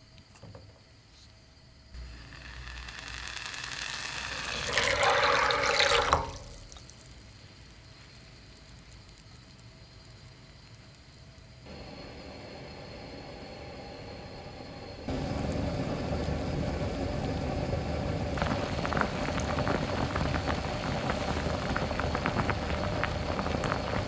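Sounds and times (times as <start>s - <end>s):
low steady hum: 1.5s - 24.0s
water running into a container: 2.0s - 9.0s, 15.1s - 24.0s.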